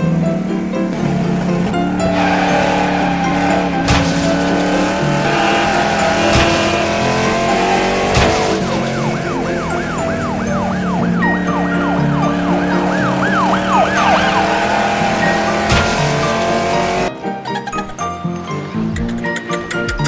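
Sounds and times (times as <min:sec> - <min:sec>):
background music sustained notes: 0:00.0 - 0:19.7
police siren yelp: 0:07.0 - 0:16.6.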